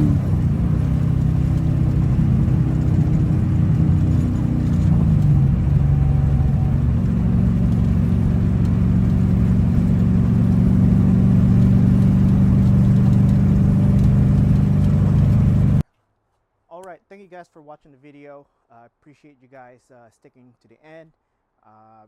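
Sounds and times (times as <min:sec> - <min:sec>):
car engine idling: 0:00.0 - 0:15.8.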